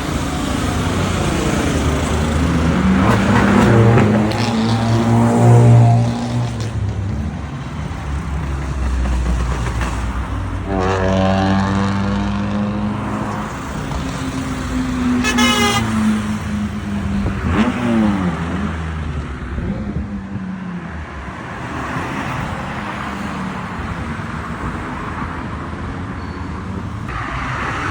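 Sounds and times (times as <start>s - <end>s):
car engines revving: 0.0s - 27.9s
car horn toot: 15.2s - 16.2s.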